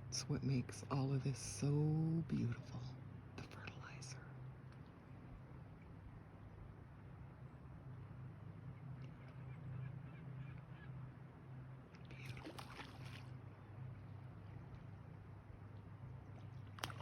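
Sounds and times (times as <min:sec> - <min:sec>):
low background rumble: 0:00.0 - 0:17.0
paddle splashing water: 0:11.9 - 0:13.6, 0:16.2 - 0:17.0
small water drips: 0:11.9 - 0:17.0.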